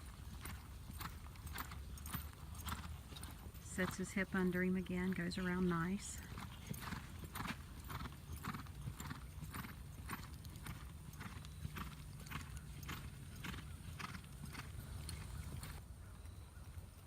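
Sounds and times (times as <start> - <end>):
horse hoofbeats: 0.0 - 17.0.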